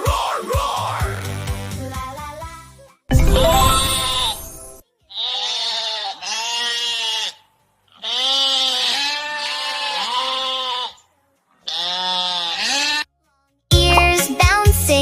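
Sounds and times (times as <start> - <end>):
farm animal bleating: 5.1 - 13.1.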